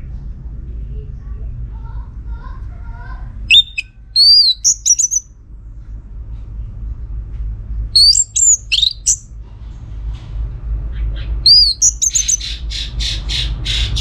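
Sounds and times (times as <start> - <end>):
bird singing whistled notes: 3.5 - 5.2, 8.0 - 9.3, 11.5 - 12.6.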